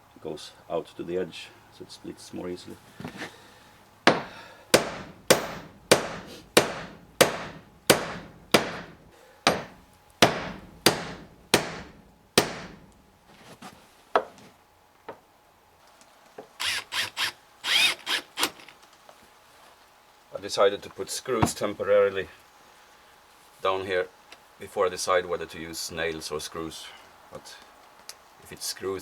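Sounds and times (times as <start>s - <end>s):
hammer striking wood: 4.1s - 13.0s.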